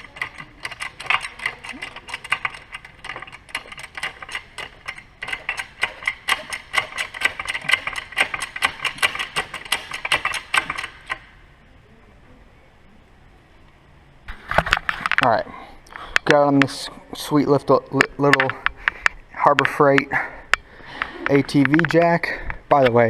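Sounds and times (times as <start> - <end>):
jack ratcheting clicks: 0.0 - 11.4, 18.0 - 22.3.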